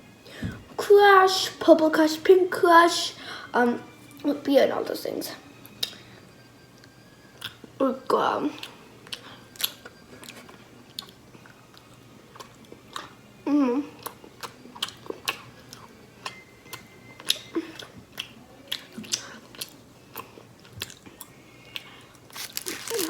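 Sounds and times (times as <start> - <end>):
person chewing sweets: 8.6 - 23.0
person humming: 13.4 - 14.0.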